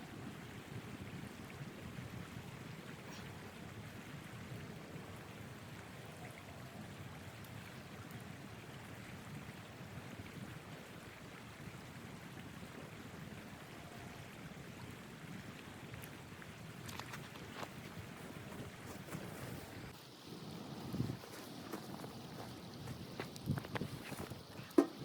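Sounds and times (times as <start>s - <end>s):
blizzard wind rushing: 17.5s - 24.5s.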